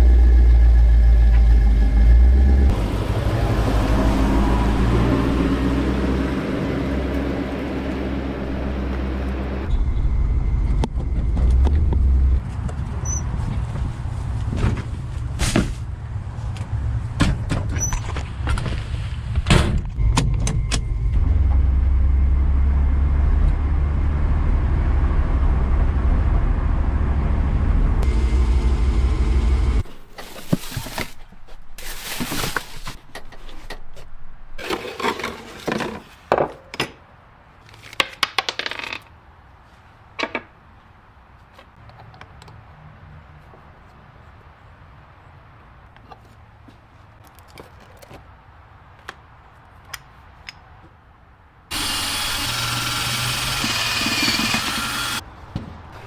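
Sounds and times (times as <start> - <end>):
motor rumbling: 0.0 - 17.8, 19.8 - 29.9, 51.7 - 55.2.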